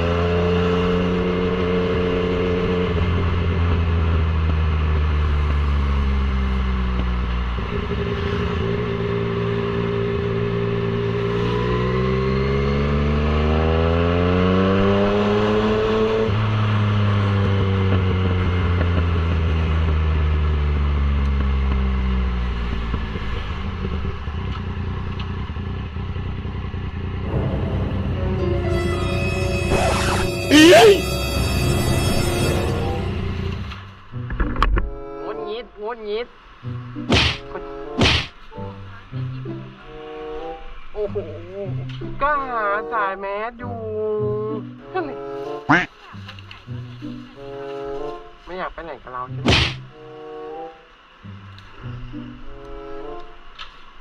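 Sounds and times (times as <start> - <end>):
motorcycle engine running: 0.0 - 13.6, 14.2 - 28.4.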